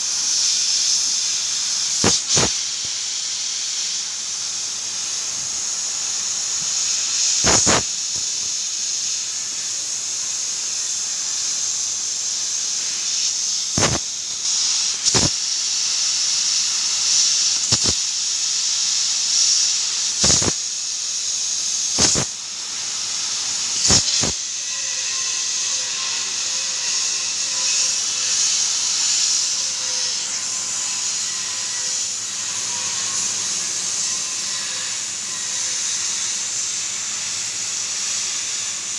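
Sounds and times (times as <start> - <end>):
laser cutter hissing: 0.0 - 38.9
sharp pops: 2.0 - 2.6, 13.8 - 14.0, 22.0 - 22.3.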